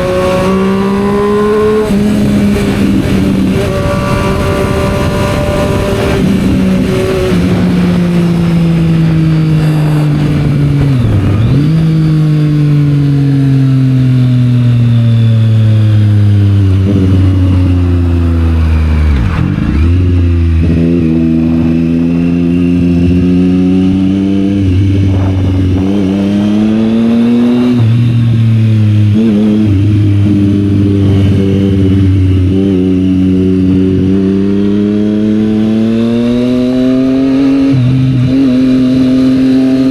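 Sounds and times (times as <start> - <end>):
motorcycle engine in traffic: 0.0 - 39.9.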